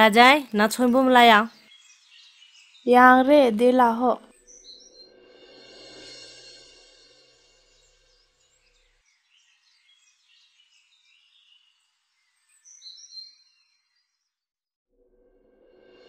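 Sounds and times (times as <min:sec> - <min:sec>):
small birds chirping: 0:00.0 - 0:05.1, 0:07.8 - 0:14.4.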